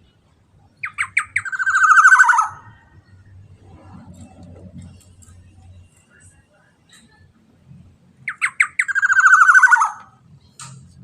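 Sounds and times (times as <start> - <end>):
oriole harsh rasping call: 0.8 - 2.8, 8.3 - 10.1
faint low rumble: 2.5 - 8.3.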